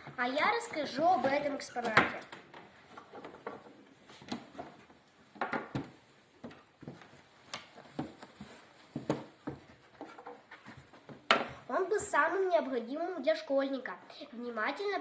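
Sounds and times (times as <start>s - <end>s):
objects knocking and rustling: 0.0s - 11.7s.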